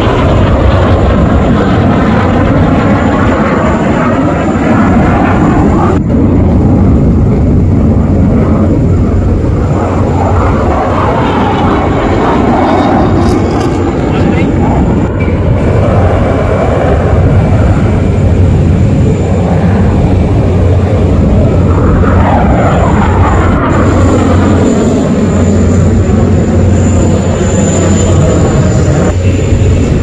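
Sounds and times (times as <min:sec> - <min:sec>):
fighter jet engine roar: 0:00.0 - 0:30.0.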